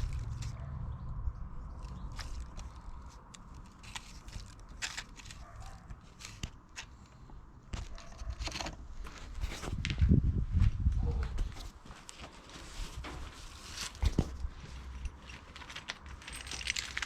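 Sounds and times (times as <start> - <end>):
engine knocks and clatter: 0.0 - 3.1.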